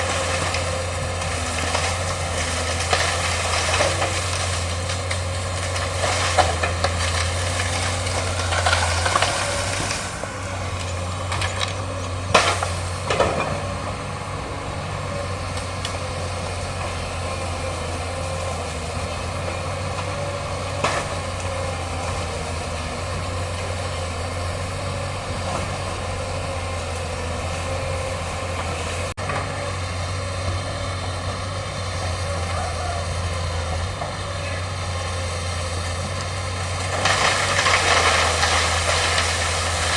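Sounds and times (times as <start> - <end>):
sharp cracks: 0.0 - 13.6, 35.6 - 39.9
excavator diesel engine droning: 0.0 - 39.9.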